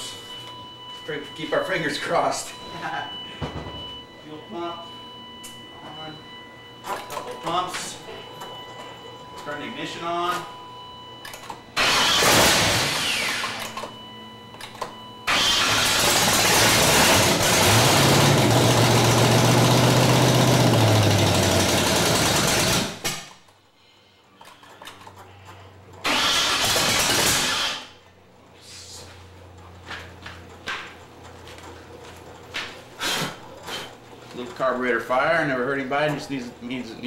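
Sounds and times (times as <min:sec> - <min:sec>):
man talking: 0:01.0 - 0:03.1, 0:09.4 - 0:10.5, 0:34.3 - 0:37.0
engine cranking on starter: 0:11.8 - 0:13.8, 0:15.3 - 0:23.2, 0:26.0 - 0:27.9.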